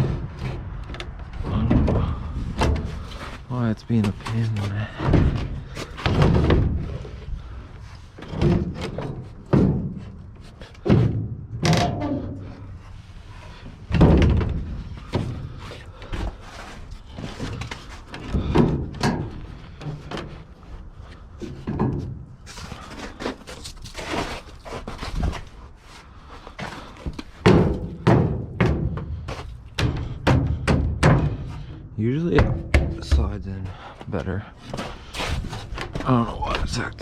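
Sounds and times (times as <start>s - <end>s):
tailgate bangs and thuds: 8.3s - 10.2s, 10.8s - 12.6s, 27.4s - 31.7s, 32.3s - 33.3s.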